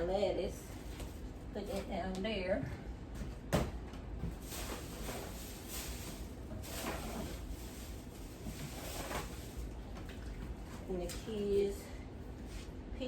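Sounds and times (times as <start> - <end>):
items knocking on shelves: 3.2 - 10.5
plastic packaging rustling: 4.2 - 11.3.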